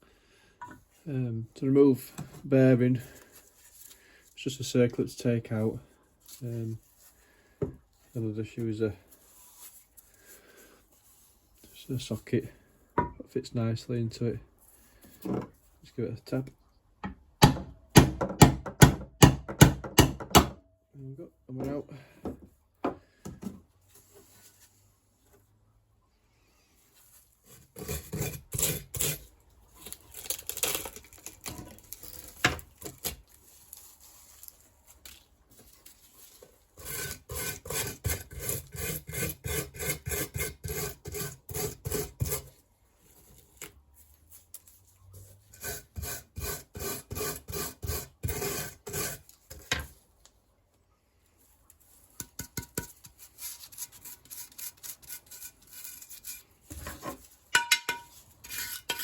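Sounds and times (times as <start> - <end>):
wire brush scrubbing metal: 52.6 - 59.0.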